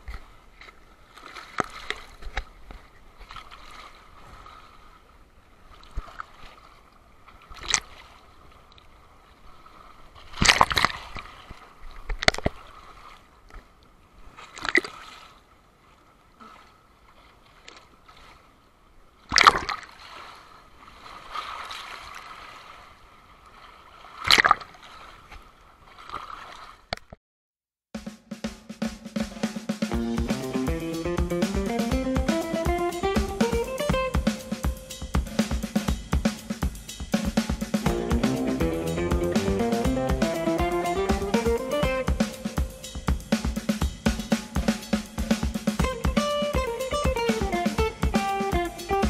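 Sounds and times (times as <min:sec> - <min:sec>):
waves breaking: 0:00.0 - 0:13.5, 0:19.2 - 0:26.8, 0:29.2 - 0:49.0
sea water sloshing and splashing: 0:00.0 - 0:27.2.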